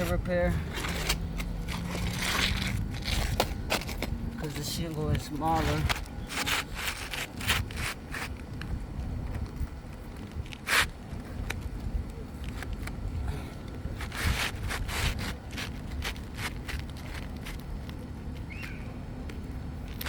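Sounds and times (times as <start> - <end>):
low rumble: 0.0 - 10.4
scrapes and rustles: 0.0 - 13.0, 13.7 - 18.4.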